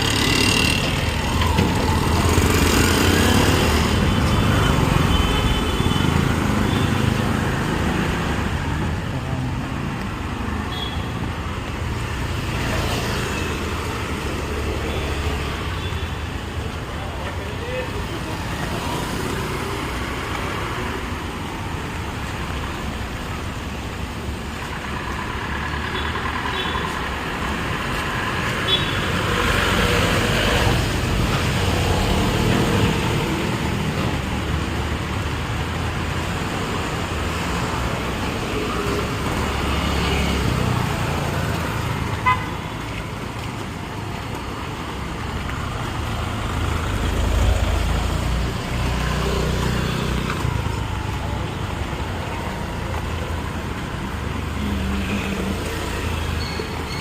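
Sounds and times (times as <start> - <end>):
passing vehicles: 0.0 - 57.0.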